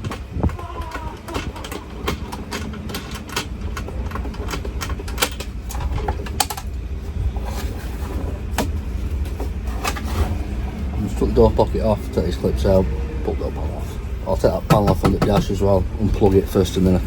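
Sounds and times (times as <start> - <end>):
tools and plastic trim clicking: 0.0 - 6.8
steady low rumble: 1.3 - 17.0.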